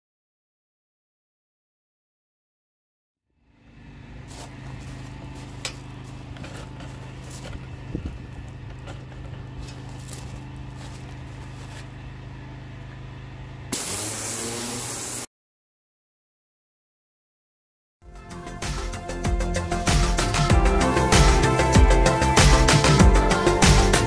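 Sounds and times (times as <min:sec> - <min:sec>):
pressure washer humming: 0:08.6 - 0:15.3
pressure washer lance spraying: 0:13.7 - 0:15.3.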